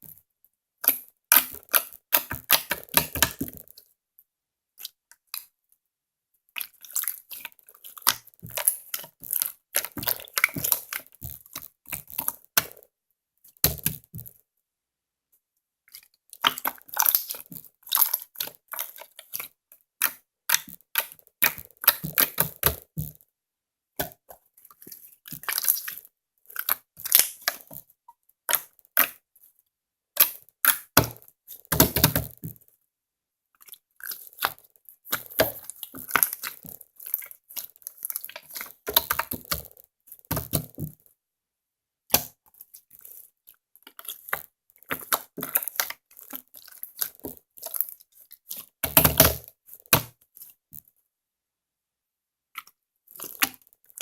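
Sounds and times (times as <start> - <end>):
slime crackling and popping: 6.6 - 12.8, 16.4 - 19.4, 26.6 - 27.8, 34.1 - 40.8.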